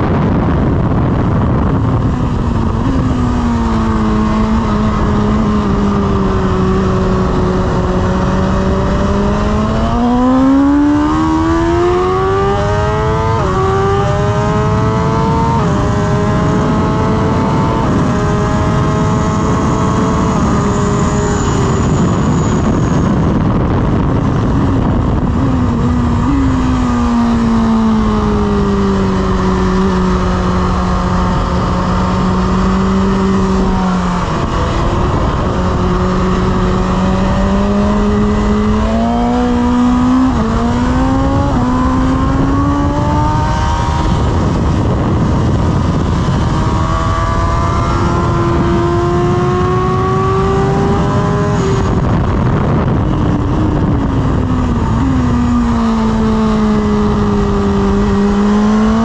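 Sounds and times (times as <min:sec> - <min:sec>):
motorcycle engine revving: 0:00.0 - 0:59.0
wind rush: 0:00.0 - 0:59.0.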